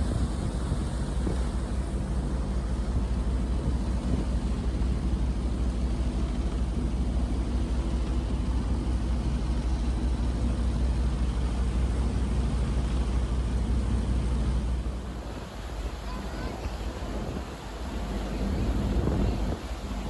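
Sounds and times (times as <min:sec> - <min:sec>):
wind noise: 0:00.0 - 0:05.1, 0:14.9 - 0:20.0
boat engine humming: 0:00.0 - 0:20.0
water rushing: 0:00.0 - 0:20.0.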